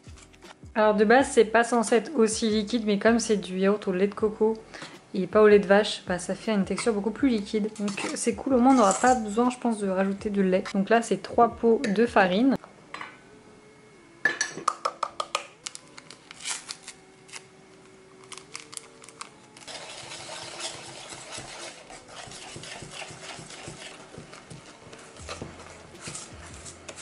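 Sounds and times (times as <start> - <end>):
spoon scraping batter in bowl: 19.7 - 27.0.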